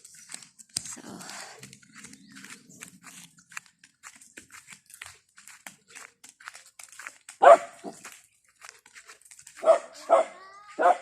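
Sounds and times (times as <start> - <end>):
faint clicks and crunches: 0.0 - 10.0
dog barking: 7.4 - 8.0, 9.6 - 11.0
dog yelp: 9.6 - 11.0.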